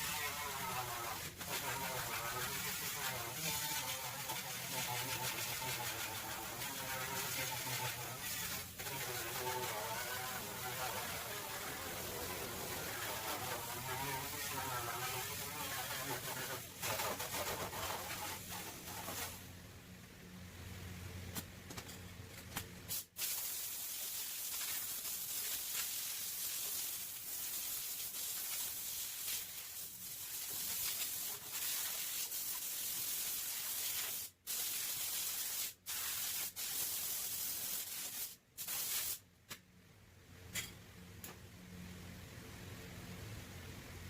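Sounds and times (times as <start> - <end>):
paint spray gun hissing: 22.9 - 39.2.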